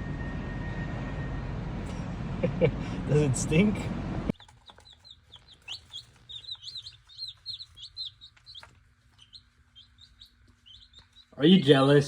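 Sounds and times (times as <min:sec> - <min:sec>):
small birds chirping rapidly: 0:04.3 - 0:12.0.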